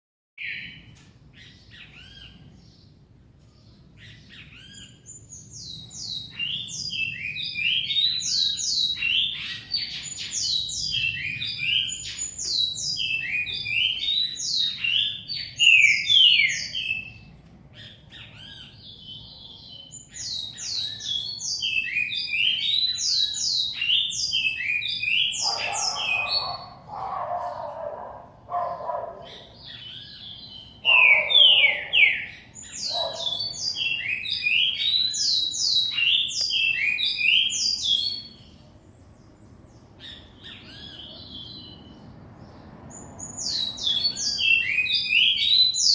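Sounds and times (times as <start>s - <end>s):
songbirds singing: 0.4s - 45.9s.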